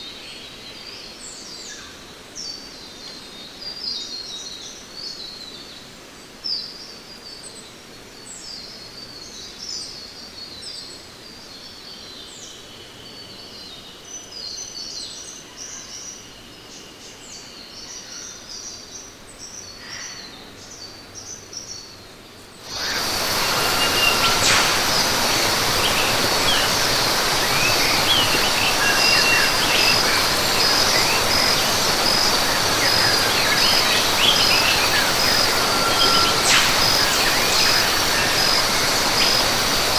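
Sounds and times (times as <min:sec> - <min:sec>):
insects buzzing: 0:22.6 - 0:39.9
birds chirping and calling: 0:22.7 - 0:39.9
loud steady rushing noise: 0:22.7 - 0:39.9.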